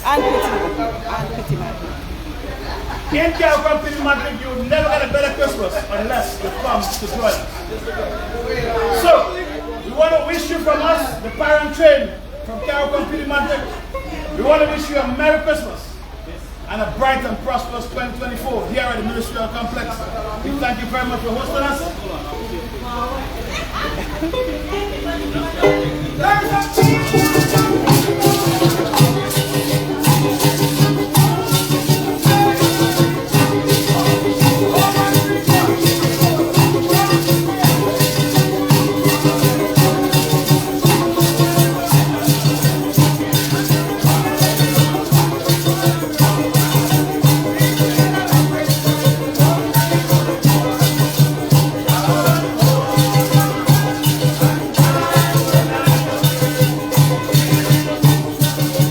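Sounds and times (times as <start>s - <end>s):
maracas shaking: 0.0s - 7.9s, 23.5s - 58.9s
bass line: 23.4s - 58.9s
stringed instruments: 23.9s - 58.9s.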